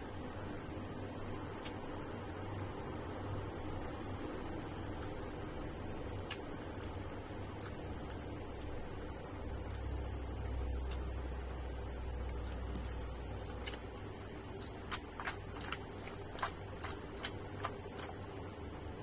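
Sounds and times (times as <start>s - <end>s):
chewing crunchy fruit: 6.0s - 19.0s.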